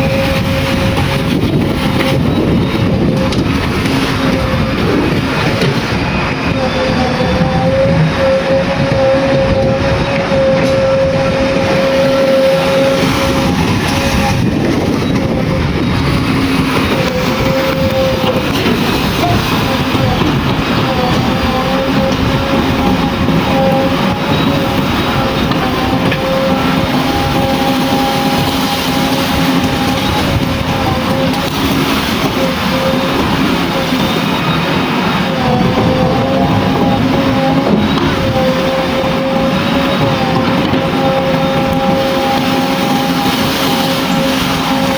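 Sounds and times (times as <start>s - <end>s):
diesel engine running: 0.0s - 44.9s
steady whine: 0.0s - 44.9s.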